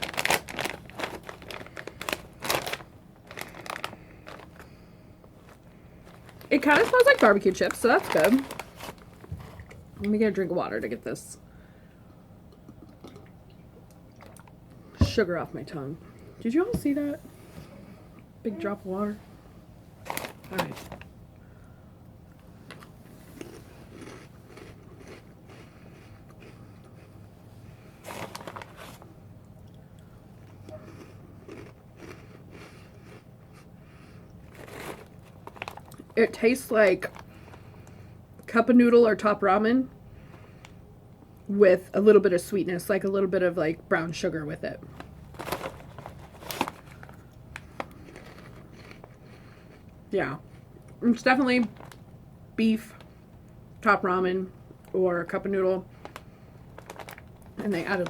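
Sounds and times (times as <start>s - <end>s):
plastic snack bag crinkling: 0.0s - 9.8s, 20.0s - 21.1s, 22.6s - 26.6s, 28.0s - 29.1s, 30.4s - 33.2s, 34.4s - 37.8s, 44.9s - 49.8s, 51.2s - 52.1s, 55.9s - 58.0s
person chewing crunchy snack: 22.8s - 27.1s, 30.4s - 33.7s, 34.4s - 36.1s, 45.4s - 50.0s.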